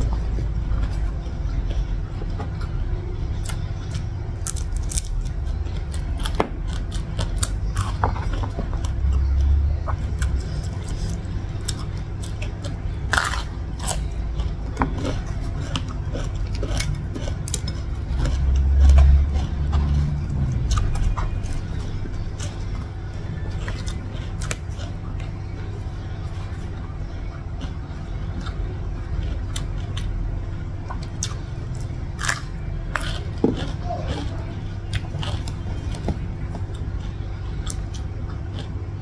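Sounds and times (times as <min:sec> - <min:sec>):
crunching raw vegetables: 0:00.0 - 0:39.0
low rumble: 0:05.2 - 0:39.0.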